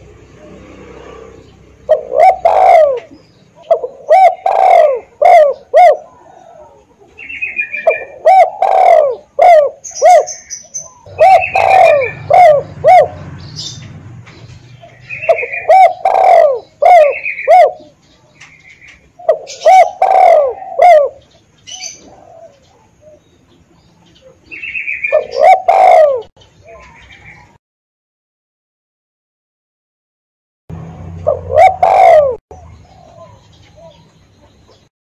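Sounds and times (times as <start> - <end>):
doves cooing: 0.0 - 27.5, 30.8 - 34.8
small birds chirping: 0.0 - 27.6, 30.7 - 34.9.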